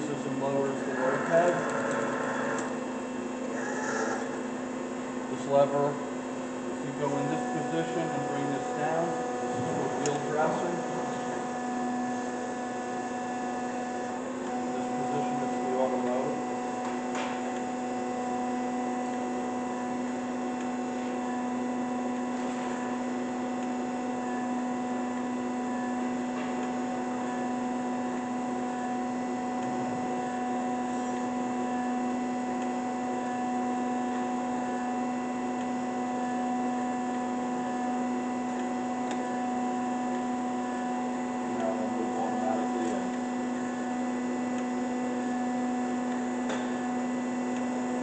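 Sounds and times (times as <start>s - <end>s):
surface grinder humming: 0.2s - 4.6s.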